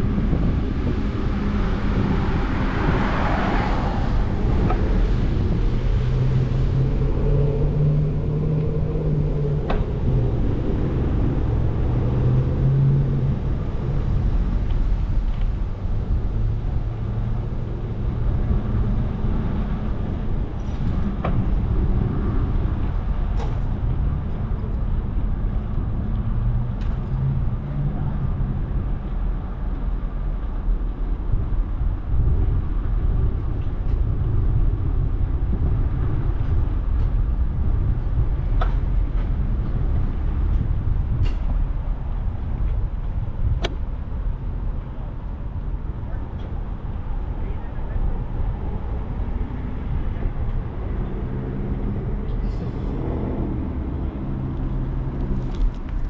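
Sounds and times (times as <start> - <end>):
street traffic rumble: 0.0 - 56.0
vehicle engine humming: 41.9 - 45.4.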